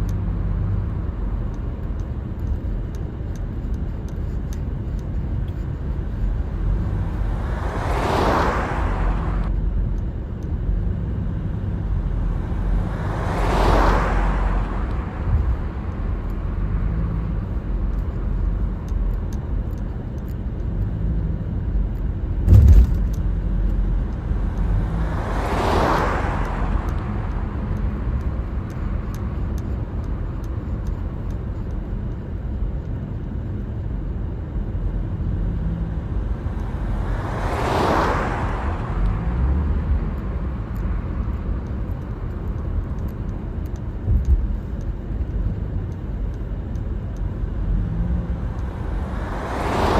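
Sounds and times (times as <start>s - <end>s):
passing vehicles whooshing: 0.0s - 31.7s, 34.8s - 49.9s
car road and engine rumble: 0.0s - 49.9s
short thump: 22.4s - 23.2s.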